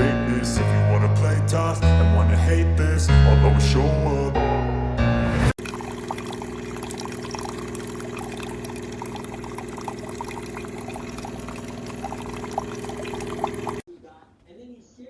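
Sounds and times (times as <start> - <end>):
coffee maker pump hum: 5.6 - 13.8
liquid pouring: 5.6 - 13.8.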